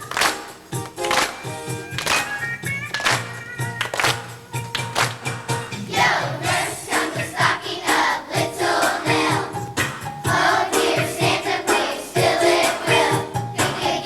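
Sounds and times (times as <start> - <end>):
music with steady beat: 0.0 - 14.0
children's choir singing: 5.8 - 14.0.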